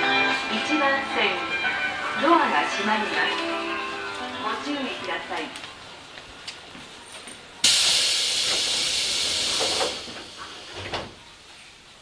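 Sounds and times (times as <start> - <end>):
train doors hissing air: 7.6 - 11.2.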